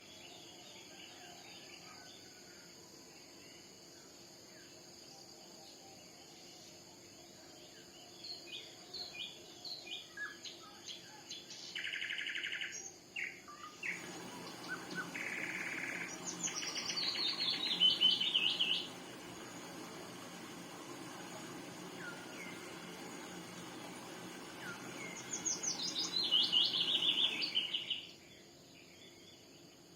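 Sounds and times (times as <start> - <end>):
songbirds chirping and singing: 7.9 - 29.6
buzzy bird trills: 13.6 - 28.1.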